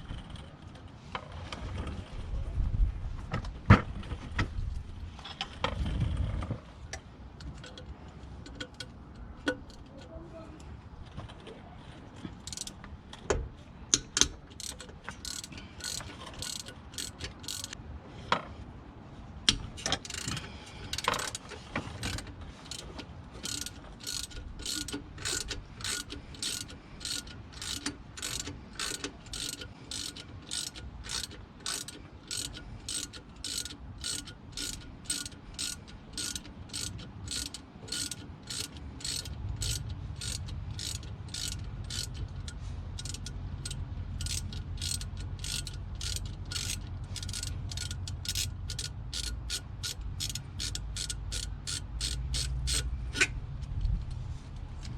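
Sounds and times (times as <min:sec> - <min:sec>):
ratchet wrench clicking: 0:07.4 - 0:10.0, 0:12.4 - 0:12.8, 0:13.9 - 0:17.8, 0:19.5 - 0:54.1.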